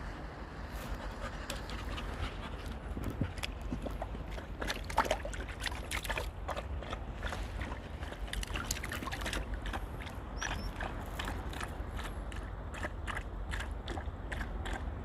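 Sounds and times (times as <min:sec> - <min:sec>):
splashing in shallow water: 0:03.2 - 0:15.0.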